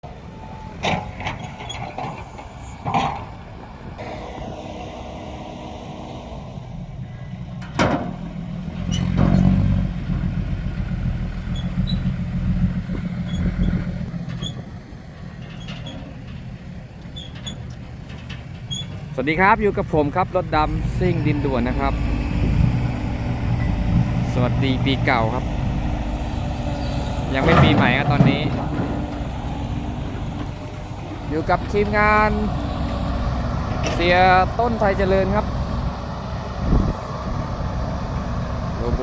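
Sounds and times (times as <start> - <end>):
low diesel engine rumble: 0.0 - 39.0.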